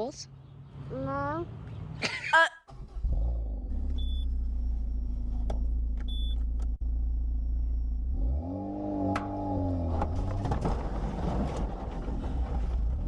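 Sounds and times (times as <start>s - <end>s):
vehicle engine rumbling: 2.7s - 13.0s.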